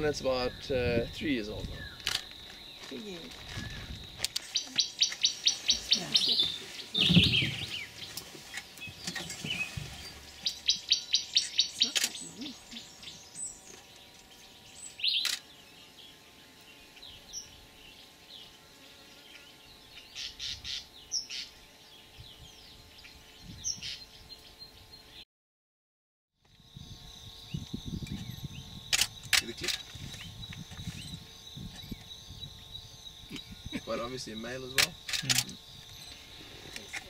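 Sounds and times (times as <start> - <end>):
bird trilling: 1.7 - 13.9, 14.6 - 16.2, 19.9 - 21.6
bird chirps: 1.7 - 18.6.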